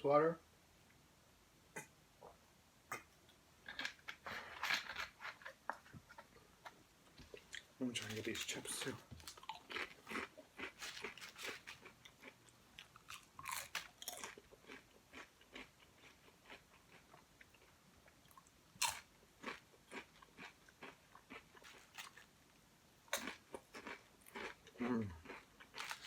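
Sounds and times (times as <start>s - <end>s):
person crunching potato chips: 7.3s - 17.7s, 18.3s - 22.4s, 23.1s - 26.0s.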